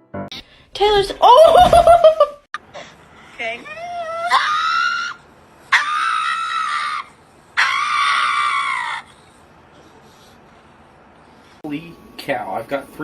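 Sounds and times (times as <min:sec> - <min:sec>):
long high-pitched screams: 0:04.2 - 0:09.2.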